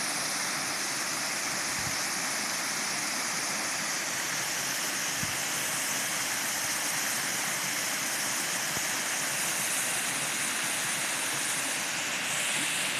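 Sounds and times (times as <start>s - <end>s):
small waterfall splashing: 0.0s - 12.9s.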